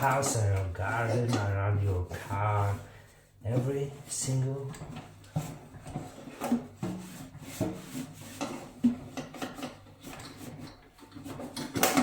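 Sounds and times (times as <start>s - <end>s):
cloth rubbing a surface: 0.0s - 11.6s.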